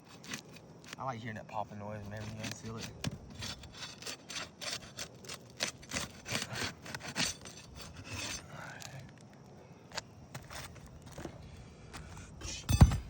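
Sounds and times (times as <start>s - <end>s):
shingle seal strips popping: 0.0s - 1.0s, 1.9s - 11.0s
tool scraping shingles: 0.0s - 8.9s.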